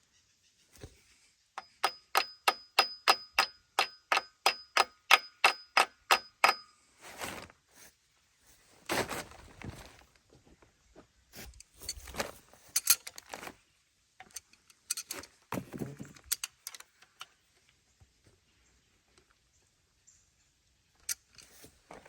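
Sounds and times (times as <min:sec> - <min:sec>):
metal tools clinking and rattling: 0:11.7 - 0:13.4, 0:14.2 - 0:17.2.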